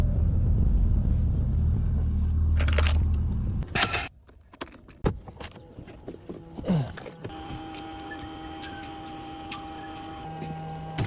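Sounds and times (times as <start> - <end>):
truck engine rumbling: 0.0 - 4.3.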